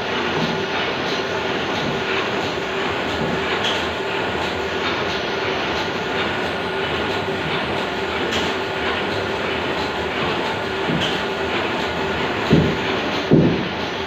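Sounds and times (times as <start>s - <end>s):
machinery running: 0.0s - 14.0s.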